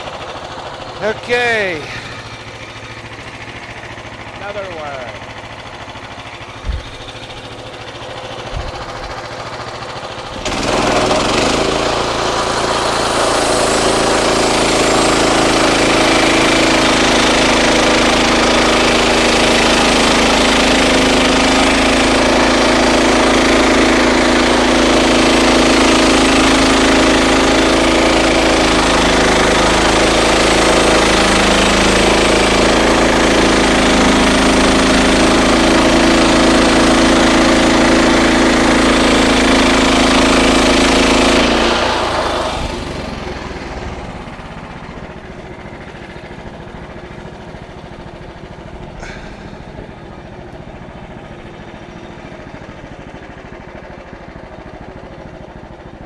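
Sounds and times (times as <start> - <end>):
sawmill engine running: 0.0 - 56.0
bandsaw blade cutting log: 6.5 - 43.7, 48.9 - 49.9.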